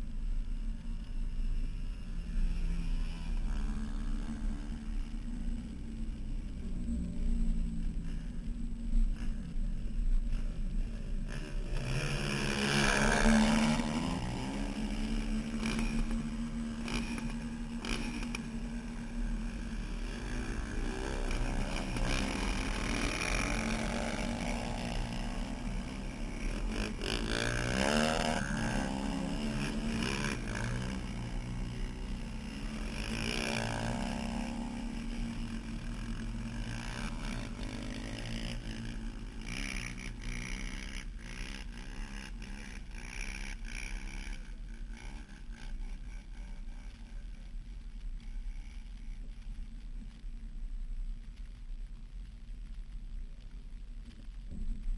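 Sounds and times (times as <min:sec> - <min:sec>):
steady hiss: 0:00.0 - 0:54.9
off-road vehicle engine revving: 0:10.3 - 0:47.0.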